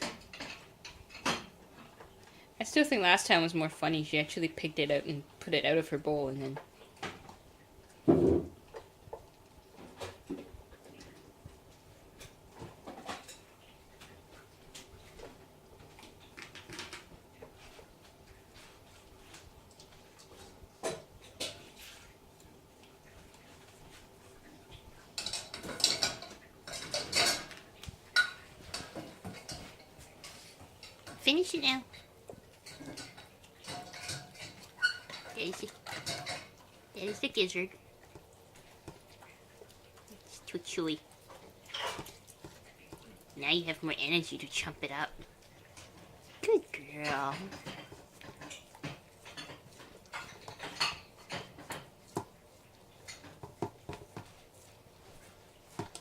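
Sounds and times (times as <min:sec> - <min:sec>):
dog licking and chewing: 0:31.9 - 0:56.0
food bowl clinking: 0:32.6 - 0:37.7.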